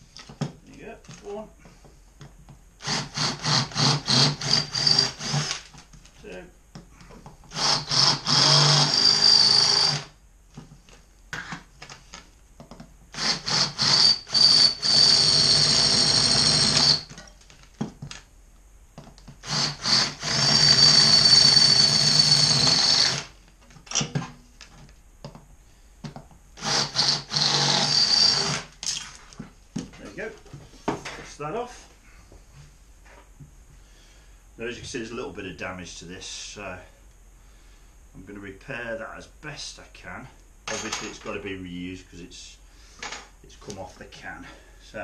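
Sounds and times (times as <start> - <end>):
cordless drill whining: 2.8 - 5.8, 7.5 - 10.2, 13.1 - 17.2, 19.4 - 23.4, 26.6 - 28.7.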